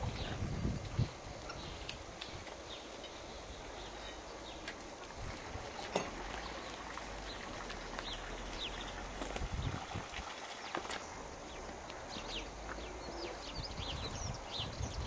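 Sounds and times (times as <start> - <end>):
wind rumble on microphone: 0.0 - 2.8, 3.4 - 10.4, 11.2 - 15.0
steady hiss of air: 0.0 - 5.8
bird chirps: 11.5 - 15.0.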